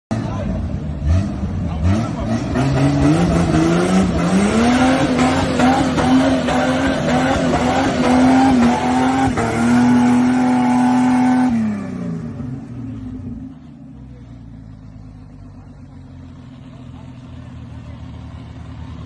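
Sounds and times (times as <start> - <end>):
engine revving high: 0.1 - 13.3.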